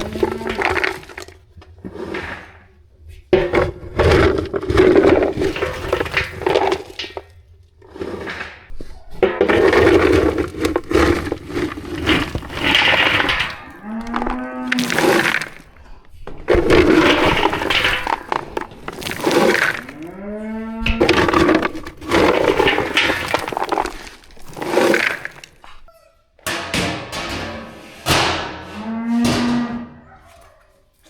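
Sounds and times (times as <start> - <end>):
cattle mooing: 0.0 - 0.8, 13.7 - 14.8, 19.9 - 21.1, 28.6 - 30.5.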